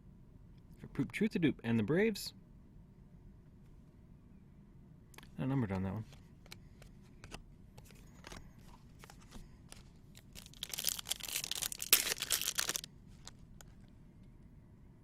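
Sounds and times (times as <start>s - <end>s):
foil wrapper crinkling and tearing: 9.0s - 13.8s.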